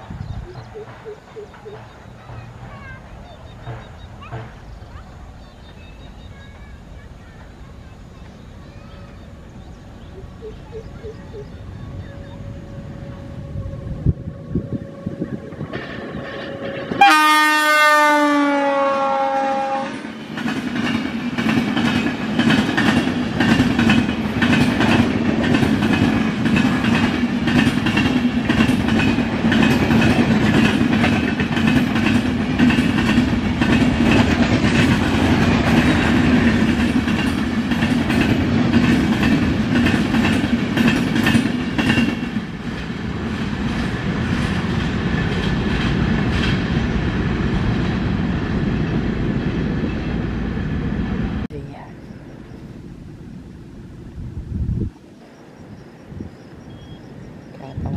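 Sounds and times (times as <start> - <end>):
train rushing by: 0.0 - 57.9
train horn: 11.8 - 20.1.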